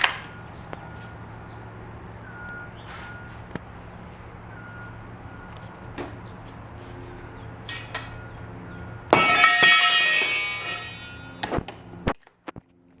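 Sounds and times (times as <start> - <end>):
steady low hum: 0.0 - 12.2
metal part ringing clang: 7.0 - 11.8.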